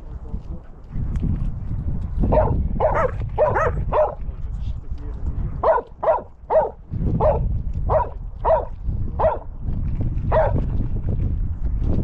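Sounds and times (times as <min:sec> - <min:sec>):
dog barking: 0:02.3 - 0:04.2, 0:05.6 - 0:09.5, 0:10.3 - 0:10.6.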